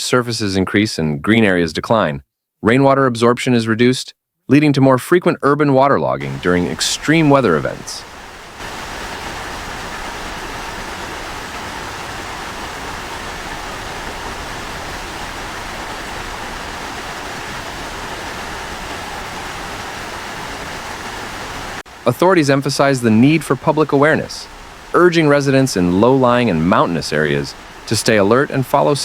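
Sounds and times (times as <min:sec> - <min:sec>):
rushing water: 0:06.2 - 0:29.0.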